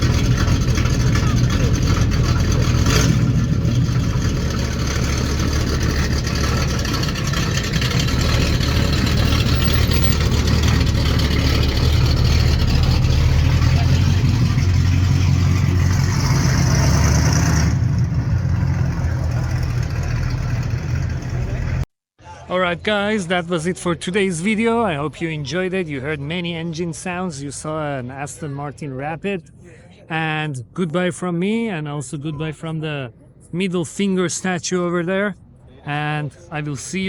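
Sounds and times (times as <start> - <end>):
car engine idling: 0.0 - 21.8.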